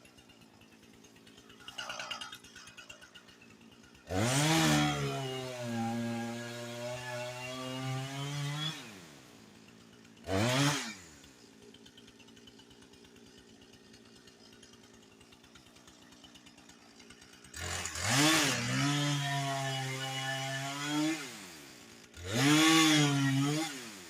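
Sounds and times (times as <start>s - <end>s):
chainsaw revving and idling: 0.0s - 24.0s.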